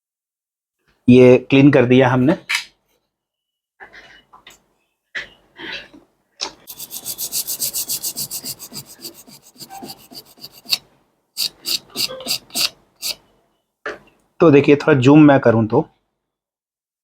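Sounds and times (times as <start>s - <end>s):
scrubbing circuit board: 6.7s - 10.8s, 11.4s - 13.2s.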